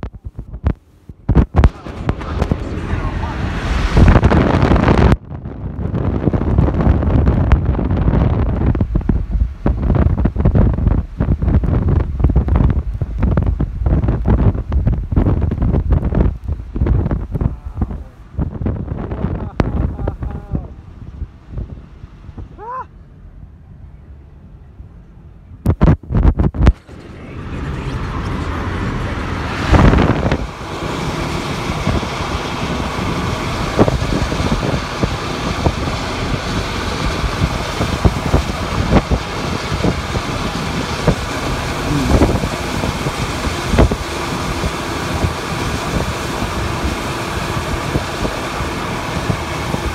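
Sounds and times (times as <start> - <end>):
loud steady rushing noise: 0.0 - 49.9.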